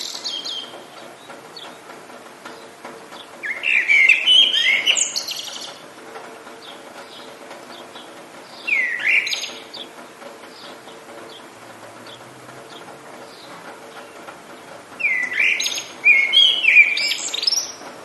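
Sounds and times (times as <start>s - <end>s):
songbird warbling: 0.0s - 0.9s, 3.4s - 5.8s, 8.6s - 9.9s, 15.0s - 17.8s
rain hissing: 0.0s - 18.0s.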